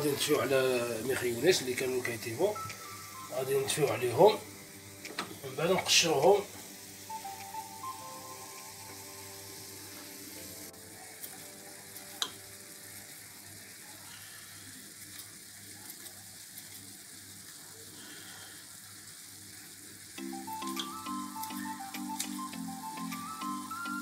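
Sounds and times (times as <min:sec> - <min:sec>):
background music: 0:00.0 - 0:12.7, 0:20.2 - 0:24.0
food sizzling in a pan: 0:00.0 - 0:24.0.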